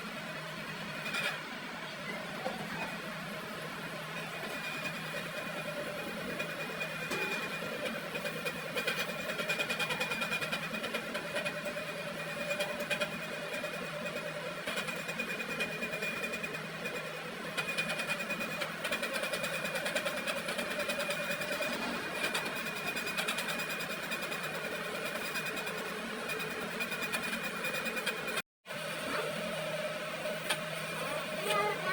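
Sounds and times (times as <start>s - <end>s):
fine rapid chatter: 30.8s - 31.9s.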